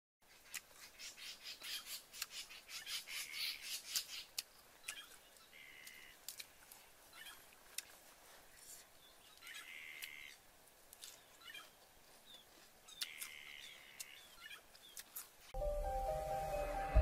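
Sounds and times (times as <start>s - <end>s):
birds chirping and squawking: 0.8s - 6.2s.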